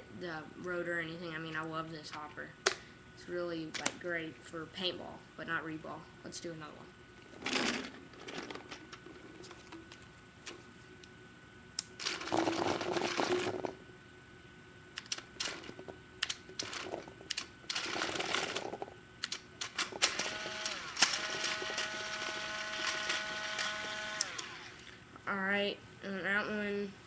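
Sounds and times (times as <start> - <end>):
steady whine: 0.0 - 26.7
paintballs rattling through loader: 7.4 - 9.1, 12.0 - 13.8, 15.0 - 23.8.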